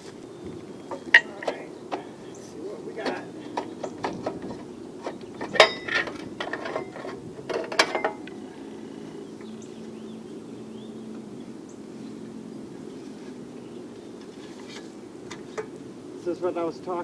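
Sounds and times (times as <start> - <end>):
faint steady hum: 0.0 - 17.0
metal tools clicking and knocking: 0.9 - 2.2, 3.0 - 8.4.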